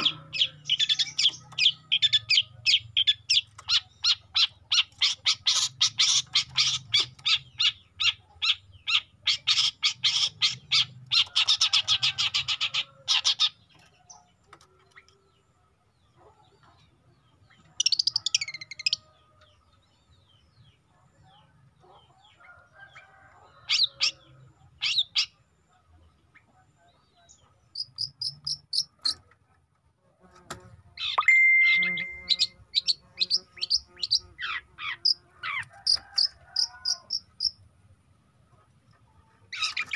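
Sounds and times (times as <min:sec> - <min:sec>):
shrike singing harsh notes: 0:31.2 - 0:32.6.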